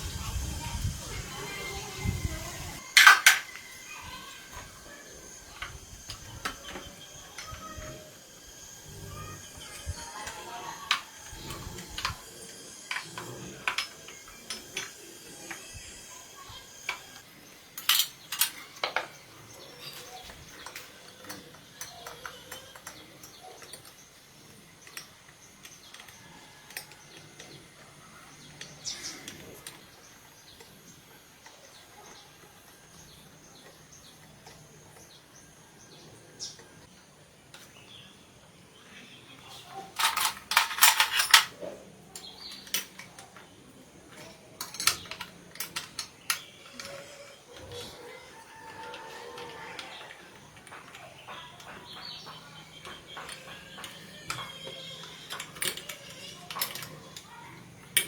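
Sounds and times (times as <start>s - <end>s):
metal parts and tools clinking: 2.4s - 27.6s, 39.6s - 43.5s, 44.1s - 58.0s.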